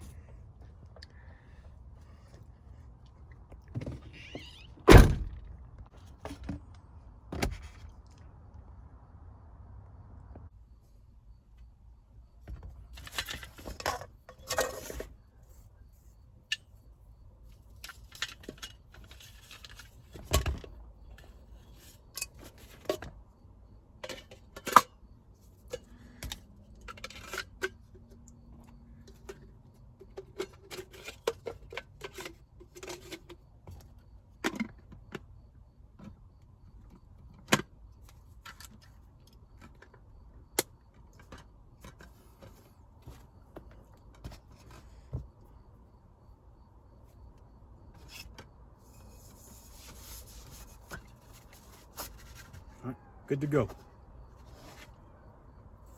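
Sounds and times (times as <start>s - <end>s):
dull thump: 4.9s - 5.5s.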